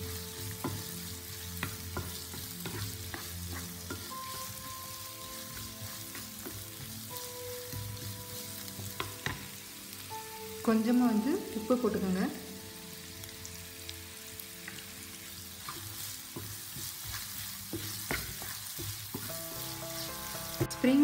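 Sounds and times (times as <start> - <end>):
wooden spatula scraping a pan: 0.0 - 9.6, 15.6 - 21.0
onions sizzling in hot oil: 0.0 - 21.0.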